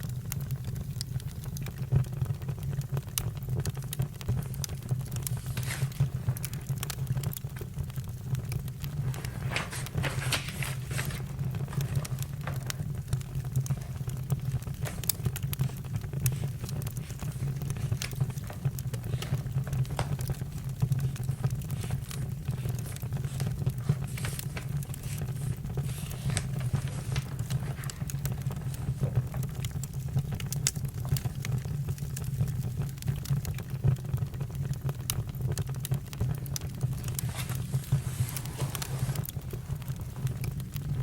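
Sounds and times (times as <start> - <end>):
campfire crackling: 0.0 - 41.0.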